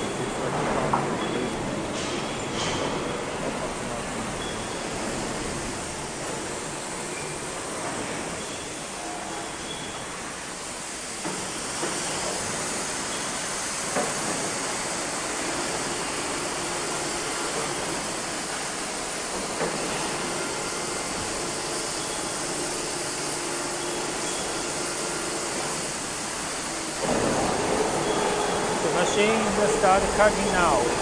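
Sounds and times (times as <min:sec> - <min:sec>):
gas torches hissing: 0:10.4 - 0:31.0.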